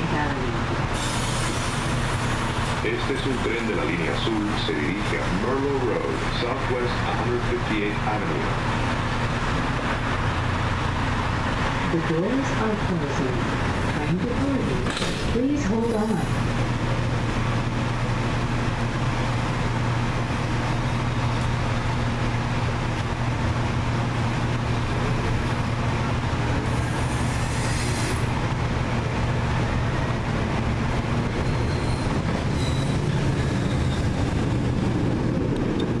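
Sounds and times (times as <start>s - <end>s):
freight train passing: 0.0s - 36.0s
light rail car rumble: 0.0s - 36.0s
faint high squeal: 31.4s - 34.2s.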